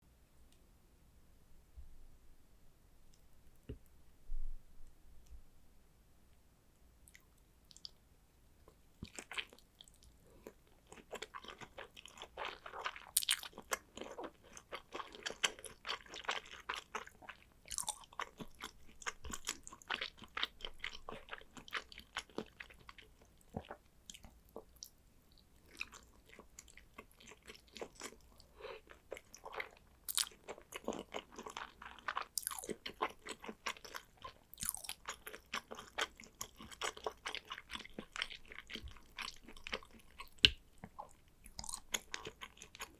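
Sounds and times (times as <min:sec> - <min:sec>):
chewing sushi: 0:08.6 - 0:42.9.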